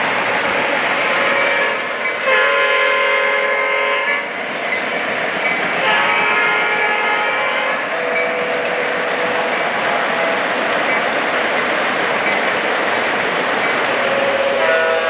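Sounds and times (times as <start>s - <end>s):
model trains running: 0.0s - 15.0s
model train horn blasts: 1.0s - 4.3s, 5.8s - 10.5s, 13.9s - 15.0s.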